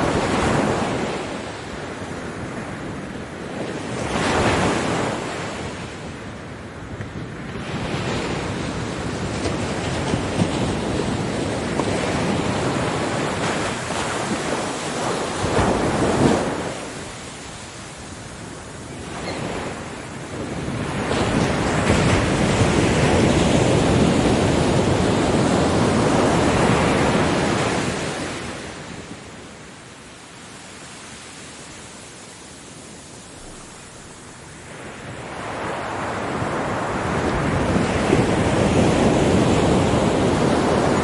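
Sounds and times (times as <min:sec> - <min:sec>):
ocean waves breaking on a beach: 0:00.0 - 0:41.0.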